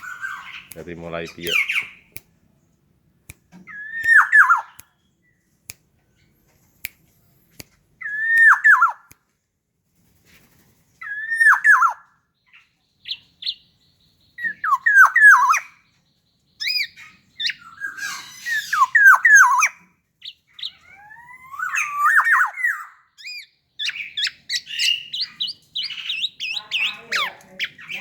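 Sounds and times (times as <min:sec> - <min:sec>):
bird singing whistled phrases: 0:03.7 - 0:04.8, 0:08.0 - 0:09.0, 0:11.0 - 0:12.0, 0:13.0 - 0:15.8, 0:16.6 - 0:28.0.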